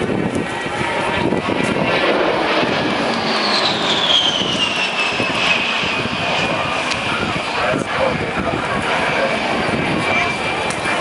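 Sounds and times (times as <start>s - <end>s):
jet flying past: 0.0s - 11.0s.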